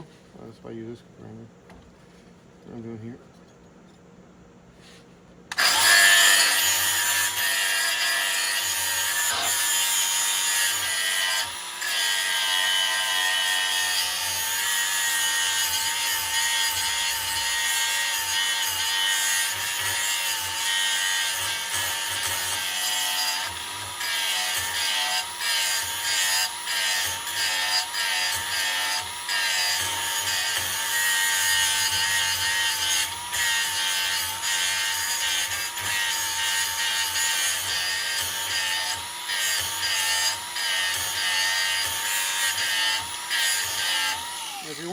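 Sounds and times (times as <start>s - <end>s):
electric grinder grinding metal: 5.5s - 44.9s.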